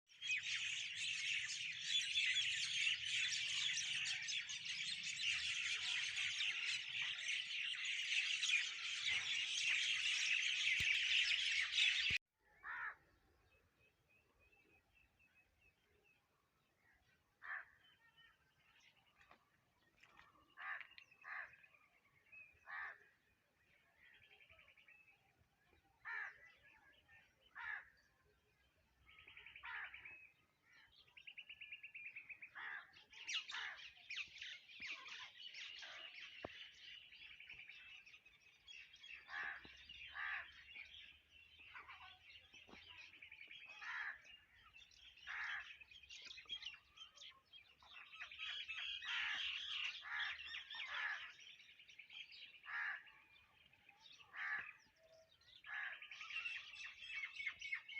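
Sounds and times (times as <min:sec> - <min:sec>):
chorus of birds singing: 0:00.0 - 0:57.9
bird trill: 0:00.1 - 0:12.2, 0:29.1 - 0:57.9
birds chirping and calling: 0:00.1 - 0:13.6, 0:16.8 - 0:57.9.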